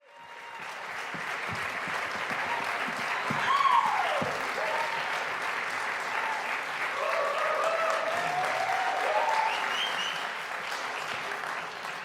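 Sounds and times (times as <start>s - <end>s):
audience applauding: 0.0s - 12.0s
person cheering: 2.3s - 5.1s.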